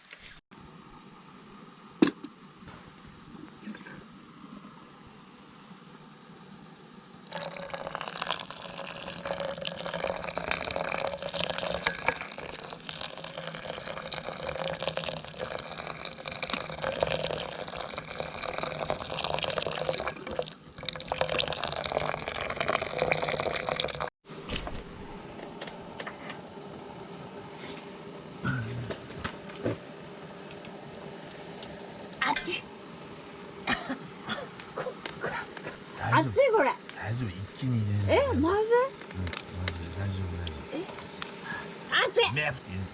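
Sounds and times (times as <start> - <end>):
water pouring: 7.2 - 24.1.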